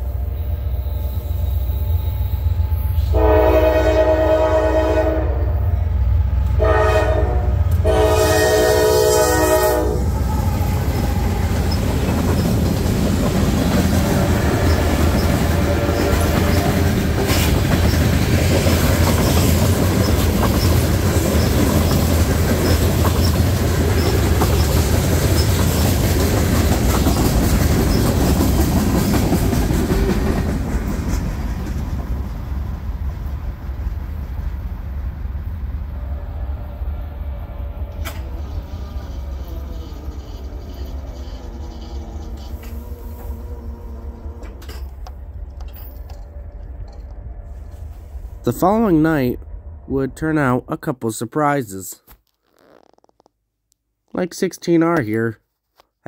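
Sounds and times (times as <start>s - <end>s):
diesel locomotive rumble: 0.0s - 50.8s
locomotive chime horn: 2.4s - 5.8s, 6.5s - 10.1s, 37.3s - 44.4s
wheels clicking over rail joints: 10.6s - 32.0s.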